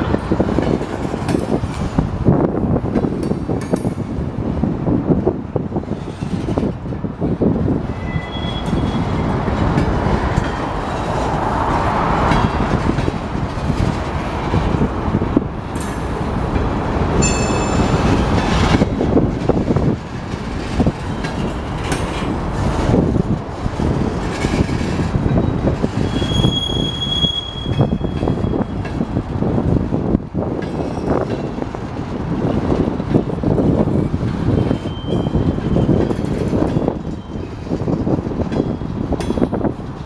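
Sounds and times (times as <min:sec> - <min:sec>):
freight train rumbling and rattling: 0:00.0 - 0:40.0
high-pitched wheel squeals: 0:07.9 - 0:09.2, 0:25.4 - 0:28.8, 0:34.5 - 0:37.8
train wheels clanking: 0:15.7 - 0:29.2, 0:30.4 - 0:40.0.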